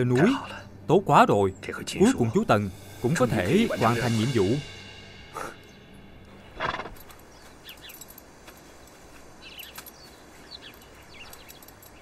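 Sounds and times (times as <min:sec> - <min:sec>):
small birds chirping: 0:05.3 - 0:12.0.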